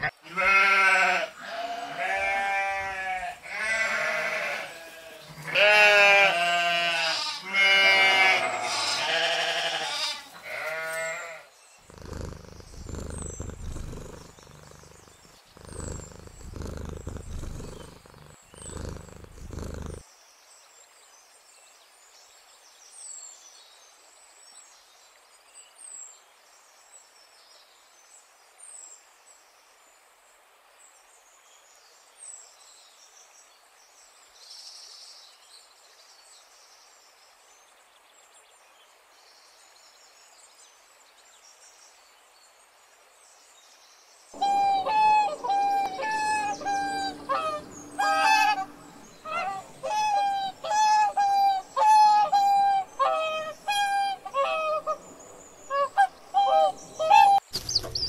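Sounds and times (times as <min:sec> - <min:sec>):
livestock bleating: 0:00.0 - 0:20.0, 0:44.4 - 0:55.0
rustling: 0:11.9 - 0:20.0.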